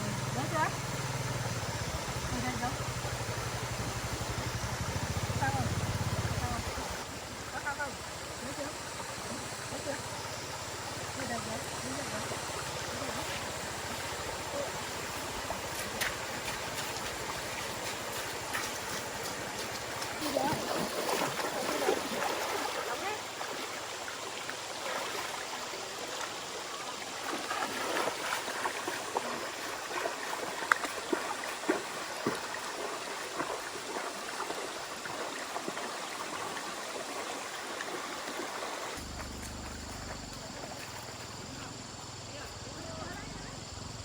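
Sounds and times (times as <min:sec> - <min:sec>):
stream water flowing: 0:00.0 - 0:44.0
small knocks and splashes: 0:14.8 - 0:41.6.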